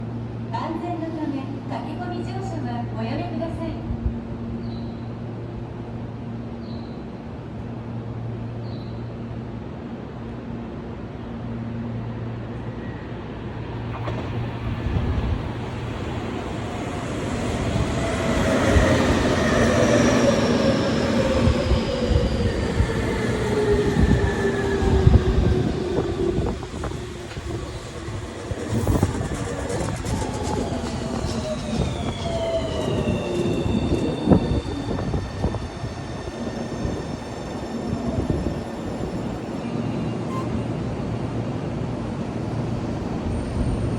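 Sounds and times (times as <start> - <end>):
electric train arriving: 9.1 - 43.9
train motor whine: 17.5 - 40.9.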